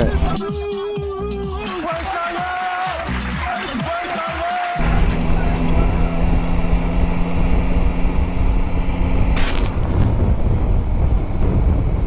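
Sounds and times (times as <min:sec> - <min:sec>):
motorcycle engine running: 0:04.8 - 0:12.0
wind rushing over microphone: 0:04.8 - 0:12.0.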